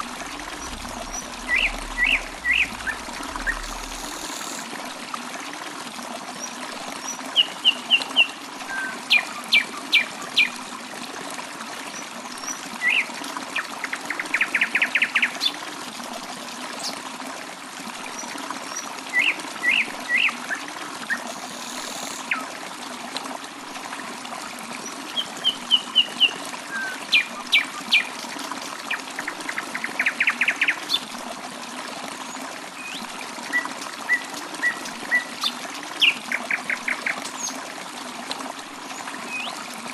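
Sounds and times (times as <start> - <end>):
trickle of running water: 0.0 - 39.9.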